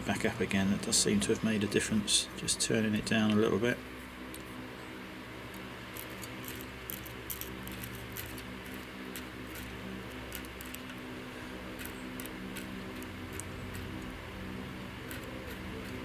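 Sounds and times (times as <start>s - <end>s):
electrical mains hum: 0.0s - 16.0s
solder flux crackling: 5.4s - 16.0s.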